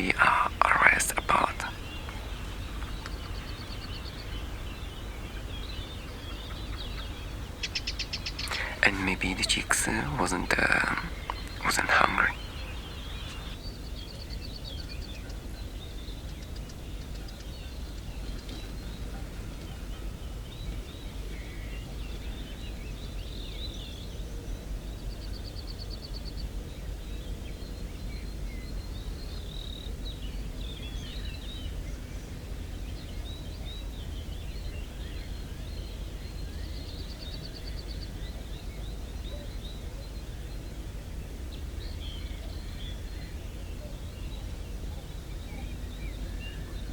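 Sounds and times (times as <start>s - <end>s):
steady low rumble: 0.0s - 14.0s
small birds chirping: 0.0s - 46.9s.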